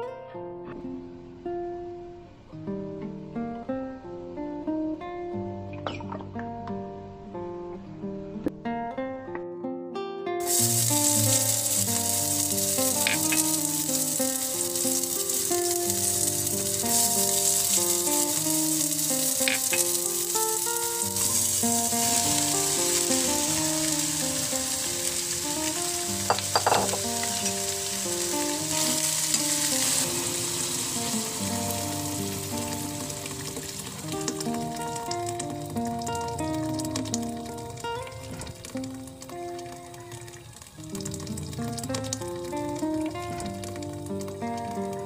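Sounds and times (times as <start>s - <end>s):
plucked background music: 10.4s - 40.0s
food sizzling in hot oil: 10.4s - 45.0s
stirring in pan: 10.5s - 35.6s.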